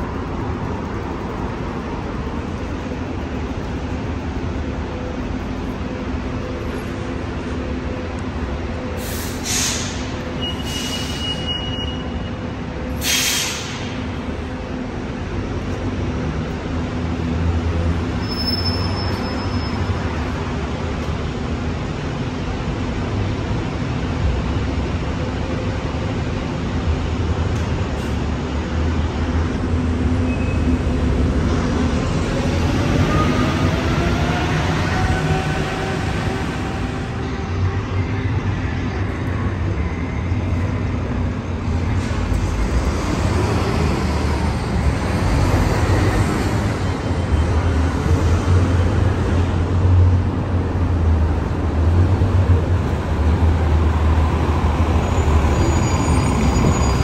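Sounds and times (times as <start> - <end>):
train hum: 0.0 - 57.0
air hisses: 9.0 - 11.4, 13.0 - 13.9.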